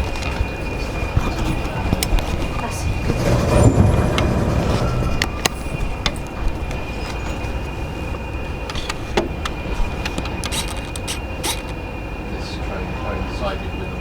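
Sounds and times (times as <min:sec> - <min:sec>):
train rumbling: 0:00.0 - 0:14.0
sharp clicks and knocks: 0:01.1 - 0:11.8.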